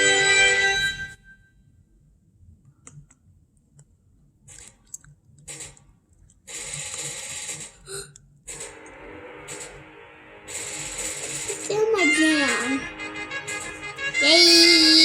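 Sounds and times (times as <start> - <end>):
short bursts of noise: 8.5 - 14.2.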